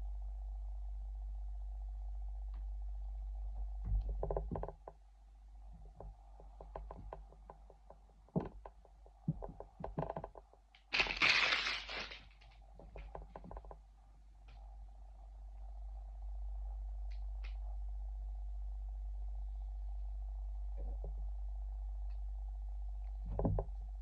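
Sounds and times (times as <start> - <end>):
packaging crinkling rustle: 10.9 - 12.6.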